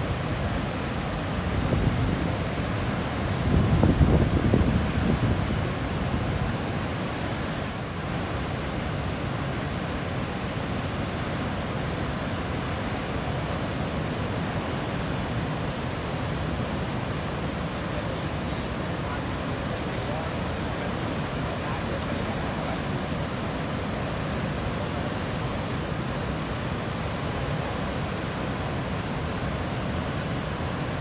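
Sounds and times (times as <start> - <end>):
wind buffeting microphone: 0.0 - 6.8
waterfall roaring: 0.0 - 31.0.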